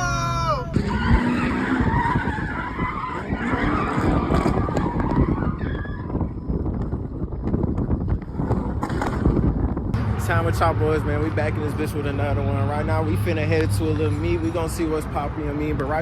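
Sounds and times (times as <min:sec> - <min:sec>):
car tires skidding: 0:00.7 - 0:06.5.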